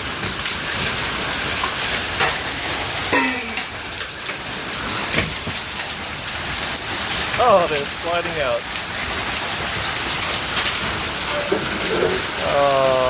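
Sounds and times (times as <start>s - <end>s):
hail clattering on hard surfaces: 0.0s - 13.0s
sharp single hail impacts: 1.5s - 6.0s.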